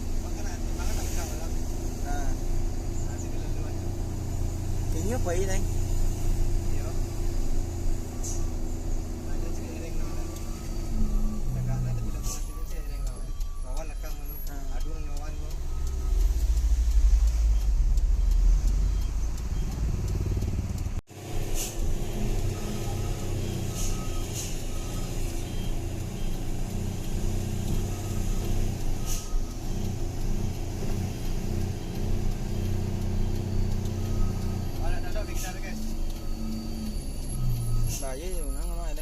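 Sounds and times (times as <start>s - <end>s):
truck engine running: 0.0s - 39.0s
heavy low rumble: 13.4s - 21.0s.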